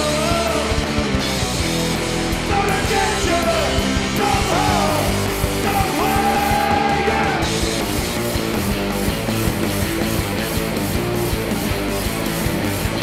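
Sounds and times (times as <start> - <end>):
rock band playing punk: 0.0 - 13.0
person singing: 2.5 - 7.5.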